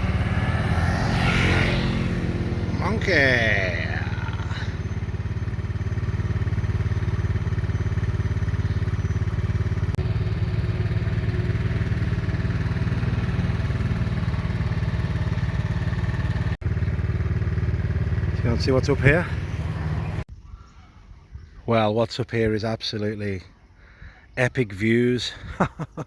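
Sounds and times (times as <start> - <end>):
motorcycle engine running: 0.0 - 20.3.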